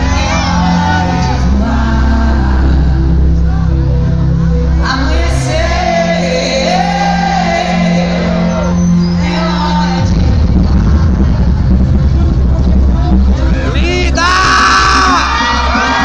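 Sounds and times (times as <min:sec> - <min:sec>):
heavy bass beat: 0:10.0 - 0:16.0
audience shouting: 0:13.8 - 0:16.0.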